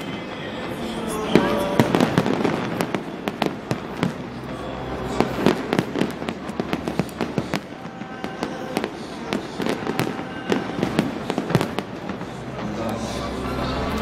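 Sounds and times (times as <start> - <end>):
fireworks bangs and crackles: 0.0 - 14.0
low rumble: 10.7 - 14.0.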